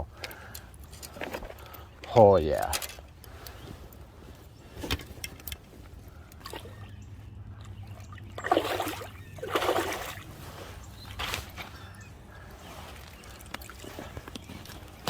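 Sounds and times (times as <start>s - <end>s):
fish splashing in water: 7.8s - 10.3s.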